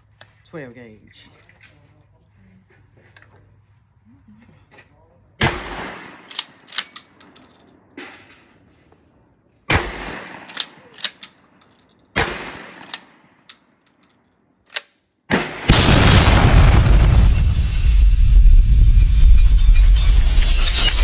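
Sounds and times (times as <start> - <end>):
shotgun shots: 5.4 - 6.7, 9.7 - 11.0, 12.2 - 13.4, 15.3 - 21.0
loud rush of noise: 15.7 - 21.0.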